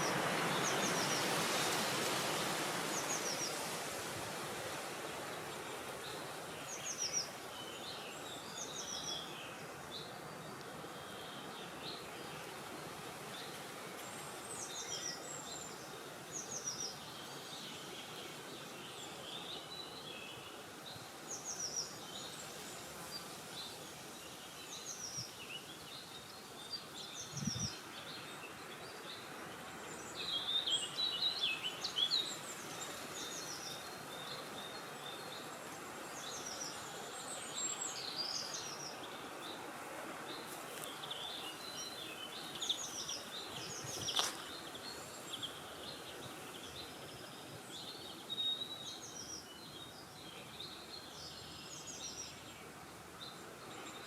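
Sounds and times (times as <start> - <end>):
small birds chirping: 13.3 - 54.0.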